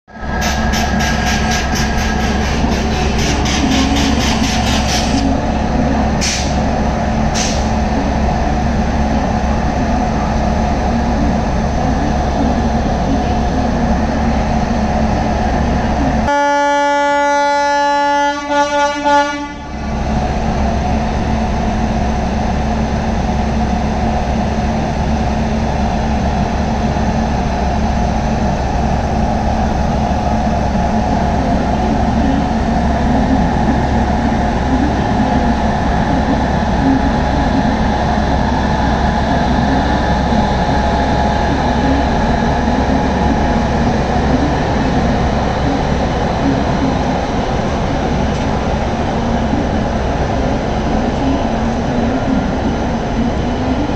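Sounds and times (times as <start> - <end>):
electric locomotive rumbling: 0.1 - 53.9
train horn: 16.3 - 19.7.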